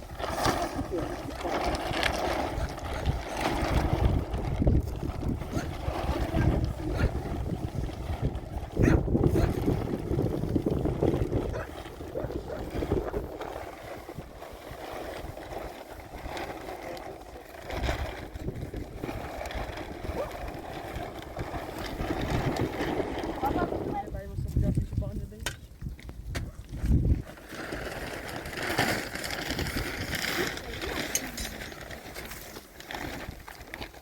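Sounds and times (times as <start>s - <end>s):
wind gusting over microphone: 0.0s - 16.7s, 17.3s - 27.4s.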